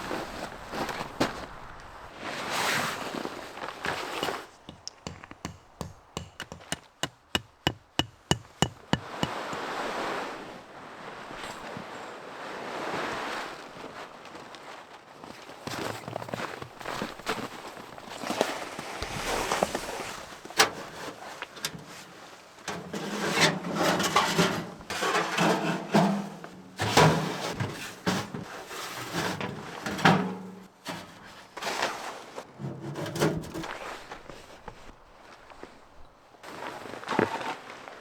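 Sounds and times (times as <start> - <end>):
scraping and crunching of snow: 0.0 - 4.6, 9.3 - 29.9, 33.6 - 38.0
sharp knocks: 4.6 - 9.6.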